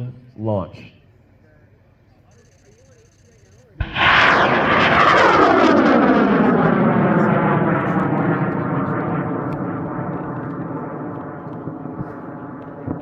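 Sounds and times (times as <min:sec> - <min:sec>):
rocket motor roaring: 0:03.8 - 0:13.0.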